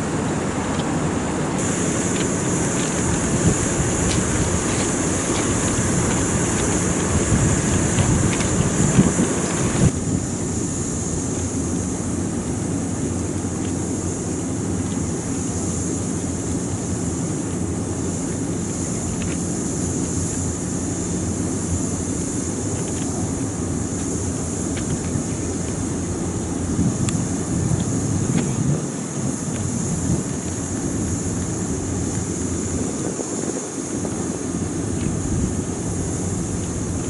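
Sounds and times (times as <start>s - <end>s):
electric train equipment humming: 0.0s - 37.0s
faint ticks: 1.6s - 9.9s, 18.3s - 20.6s, 22.6s - 28.6s.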